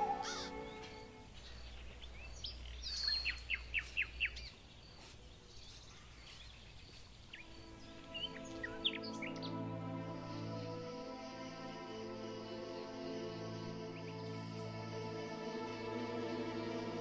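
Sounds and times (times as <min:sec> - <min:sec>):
bird song falling notes: 0:00.0 - 0:04.6
birds chirping: 0:00.0 - 0:17.0.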